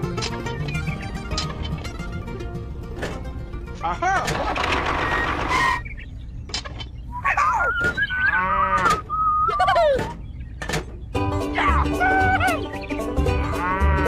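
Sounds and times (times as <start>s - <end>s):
farm animal calls: 3.8s - 14.0s.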